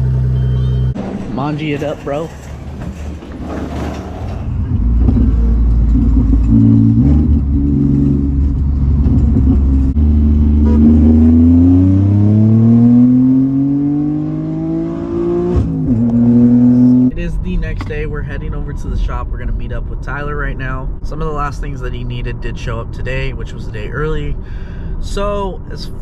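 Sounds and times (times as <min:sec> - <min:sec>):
car engine accelerating: 0:04.4 - 0:18.4.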